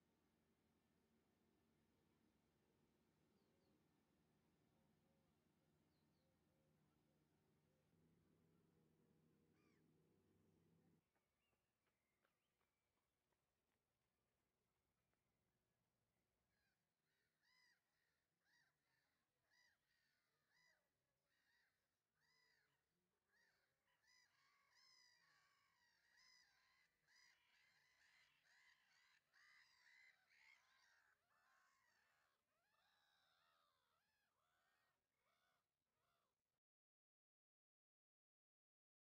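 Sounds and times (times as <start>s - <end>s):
faint bird calls: 9.5s - 9.9s, 16.5s - 36.4s.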